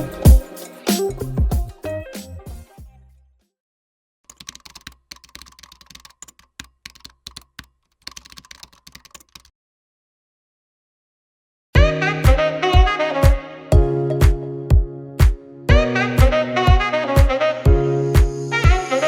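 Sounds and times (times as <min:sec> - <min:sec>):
rapid irregular clicks and taps: 0:04.3 - 0:09.5.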